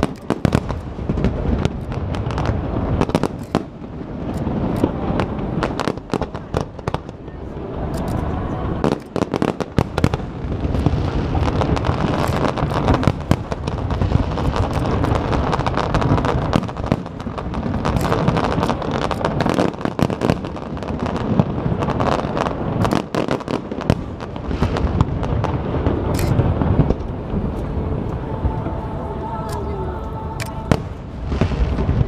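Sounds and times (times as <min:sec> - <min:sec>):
fireworks bangs and crackles: 0:00.0 - 0:29.7, 0:30.3 - 0:32.0
low rumble: 0:24.1 - 0:32.0.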